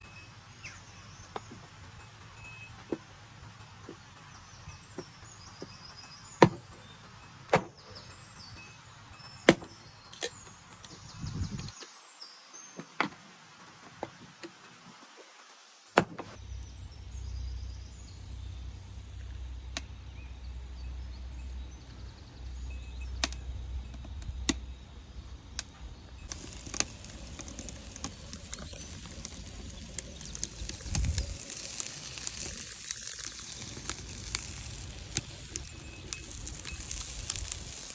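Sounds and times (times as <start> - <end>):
birds chirping: 3.6 - 13.2, 16.4 - 37.9
food sizzling in a pan: 26.3 - 37.9.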